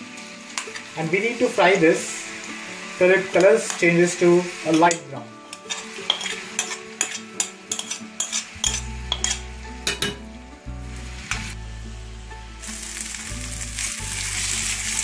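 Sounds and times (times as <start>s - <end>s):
papaya sizzling in ghee: 0.0s - 15.0s
metal spoon scraping plate: 5.5s - 10.2s.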